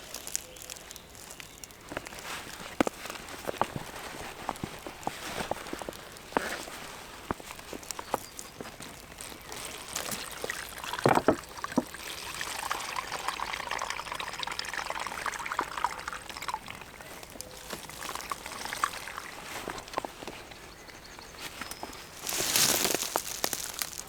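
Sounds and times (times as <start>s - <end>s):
liquid pouring and trickling: 7.5s - 20.4s.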